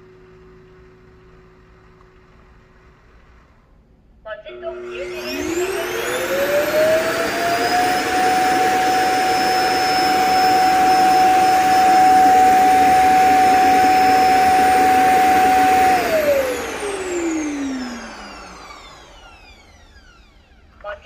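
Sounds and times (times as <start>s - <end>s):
suction motor whooshing: 4.8s - 20.5s.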